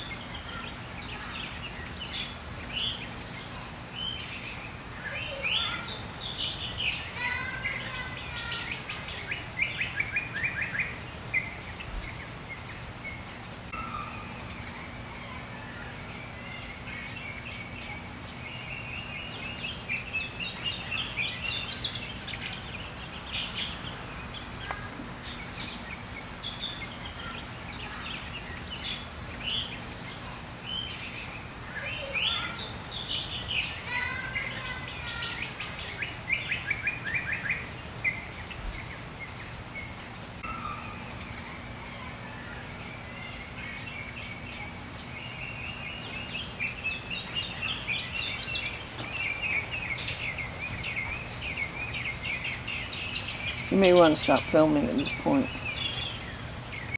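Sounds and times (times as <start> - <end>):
songbirds chirping and singing: 0.0 - 56.9.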